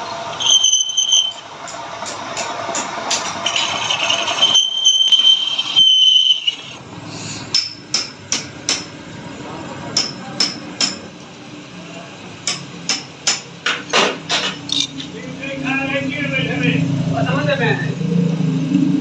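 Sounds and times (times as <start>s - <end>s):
hammer striking metal: 1.2s - 4.4s, 7.5s - 9.0s, 10.0s - 11.1s, 12.4s - 15.1s.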